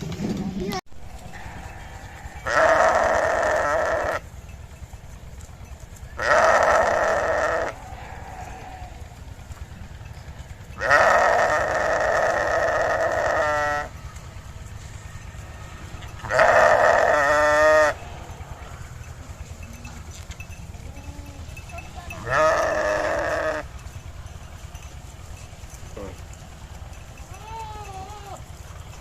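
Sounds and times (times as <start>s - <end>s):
sheep bleating: 1.2s - 4.3s, 6.1s - 9.2s, 10.8s - 14.0s, 16.0s - 18.2s, 20.9s - 23.8s, 27.2s - 28.5s.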